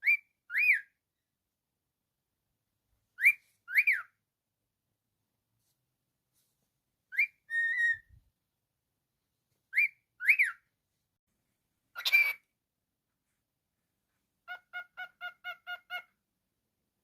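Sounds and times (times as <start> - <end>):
cockatiel whistling: 0.0 - 0.9, 3.2 - 4.1, 7.1 - 8.1, 9.7 - 10.6, 12.0 - 12.4.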